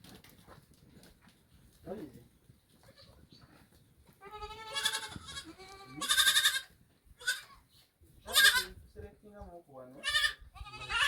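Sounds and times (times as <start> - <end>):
goats bleating: 4.2 - 7.6, 8.3 - 8.7, 10.0 - 11.0.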